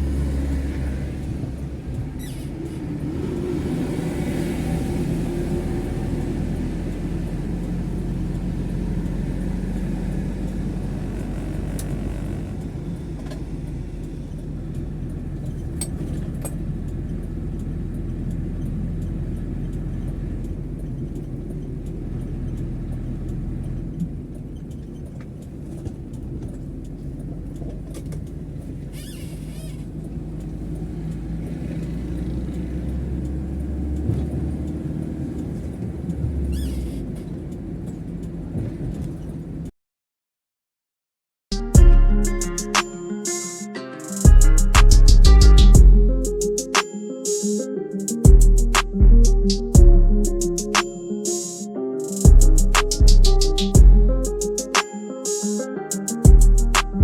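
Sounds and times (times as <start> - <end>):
car engine and road rumble: 0.0 - 39.7, 41.5 - 43.2, 44.3 - 46.7, 48.3 - 51.4, 52.2 - 54.8, 56.2 - 57.0
faint clicks: 11.7 - 39.3.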